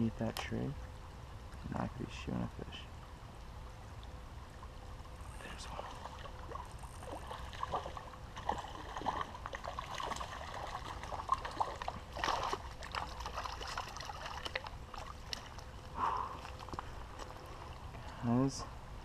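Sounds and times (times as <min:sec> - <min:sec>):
creek water trickling: 0:00.0 - 0:19.0
fish splashing at surface: 0:05.9 - 0:17.4.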